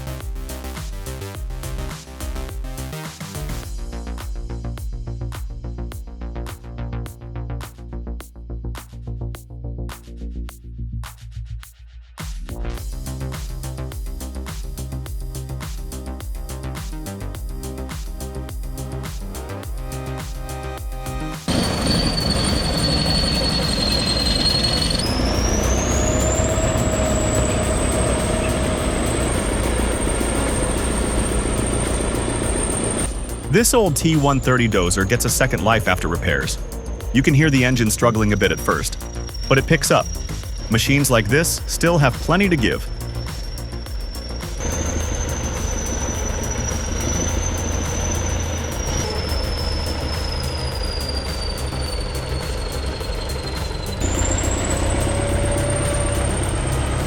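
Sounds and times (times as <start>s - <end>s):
heavy machine engine rumble: 21.5s - 57.0s
high-pitched machine whine: 21.5s - 57.0s.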